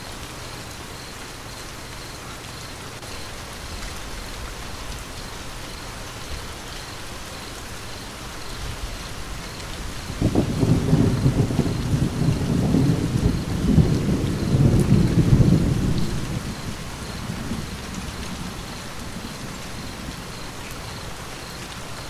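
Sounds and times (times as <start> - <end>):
steady rain: 0.0 - 22.0
thunder rumbling: 8.8 - 20.7.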